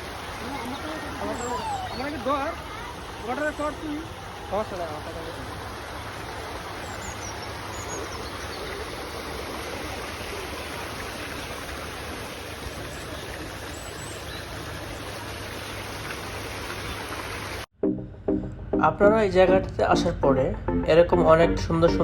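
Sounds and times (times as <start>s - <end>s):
fountain water splashing: 0.0s - 17.7s.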